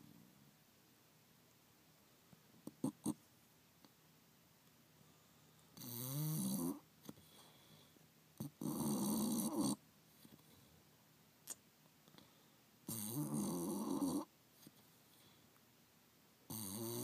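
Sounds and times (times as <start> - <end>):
dog snoring: 2.7 - 3.2, 5.8 - 6.9, 8.4 - 9.8, 12.8 - 14.3, 16.5 - 17.0.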